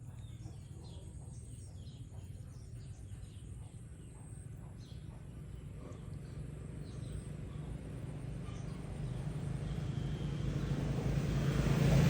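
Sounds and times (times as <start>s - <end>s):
vehicle engine approaching: 6.6s - 12.0s.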